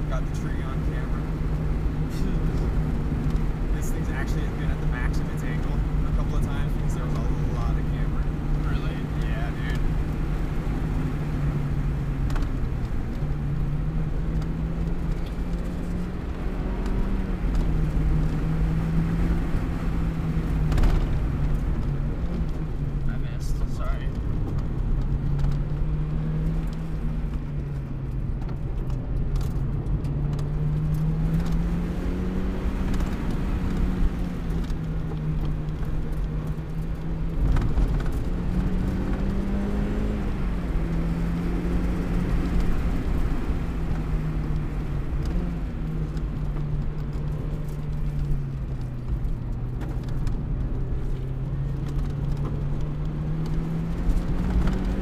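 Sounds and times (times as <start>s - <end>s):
car engine revving: 0.0s - 55.0s
road and tyre noise: 0.0s - 55.0s.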